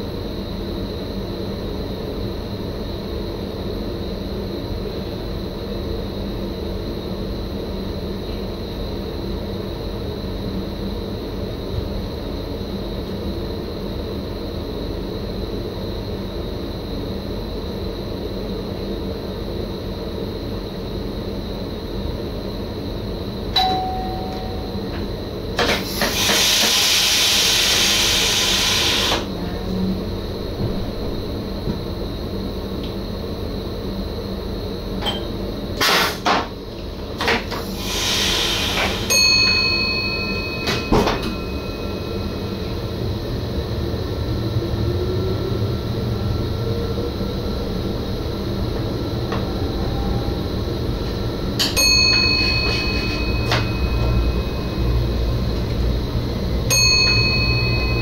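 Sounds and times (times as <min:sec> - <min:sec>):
train running rumble: 0:20.0 - 0:58.0
ringing ding: 0:23.6 - 0:24.9, 0:39.1 - 0:42.5, 0:51.6 - 0:55.2, 0:56.7 - 0:58.0
air hiss: 0:25.6 - 0:29.3, 0:37.5 - 0:39.1
faint rising whine: 0:39.7 - 0:58.0.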